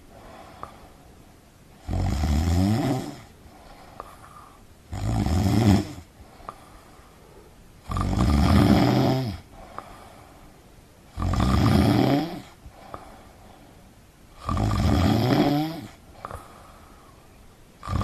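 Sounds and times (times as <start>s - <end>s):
person snoring: 1.8s - 3.4s, 4.9s - 6.6s, 7.8s - 9.9s, 11.1s - 13.0s, 14.4s - 16.8s, 17.8s - 18.0s.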